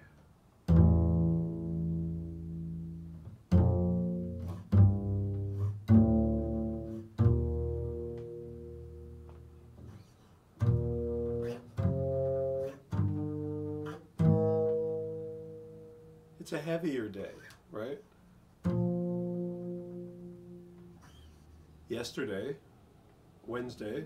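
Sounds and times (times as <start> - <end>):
low plucked string notes: 0.7 - 9.9, 10.6 - 16.4, 18.6 - 21.1.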